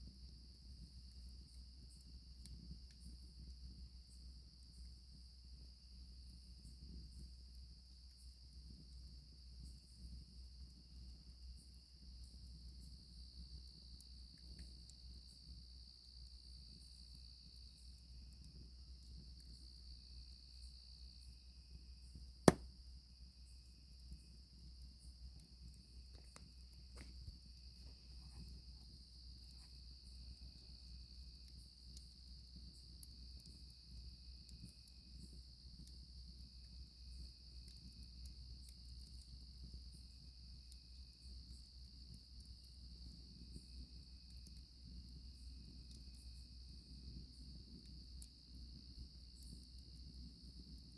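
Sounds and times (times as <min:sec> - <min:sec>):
crickets chirring: 0:15.1 - 0:50.9
campfire crackling: 0:16.2 - 0:19.6, 0:22.4 - 0:50.9.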